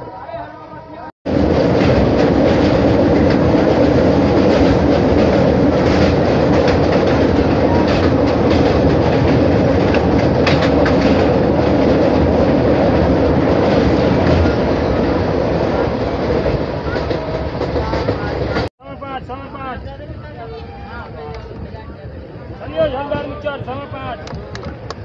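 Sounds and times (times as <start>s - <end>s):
wheels clacking over rail joints: 1.3s - 18.7s
train wheels rumbling: 1.3s - 25.0s.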